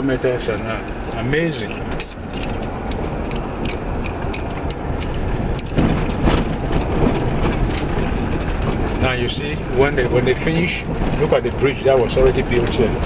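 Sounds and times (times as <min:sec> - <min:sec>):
car engine and tyre rumble: 0:00.0 - 0:13.0
rattles and knocks: 0:00.4 - 0:13.0.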